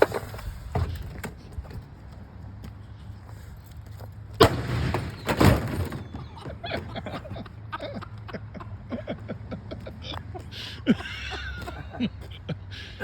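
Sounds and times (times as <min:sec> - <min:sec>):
loud bang: 0:04.4 - 0:06.2.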